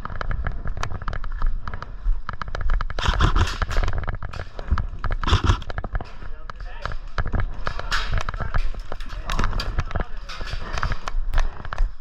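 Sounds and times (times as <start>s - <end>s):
airsoft guns firing: 3.0s - 6.0s.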